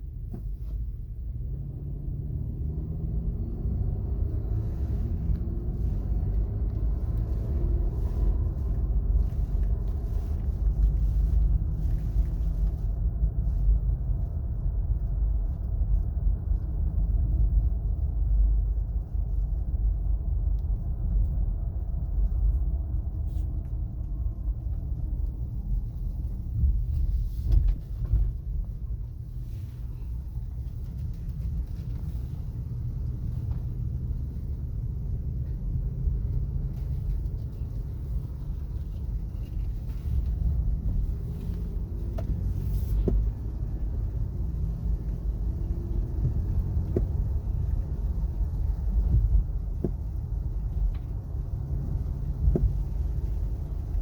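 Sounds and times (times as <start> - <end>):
road and tire rumble: 0.0 - 54.0
car whining noise: 23.2 - 54.0.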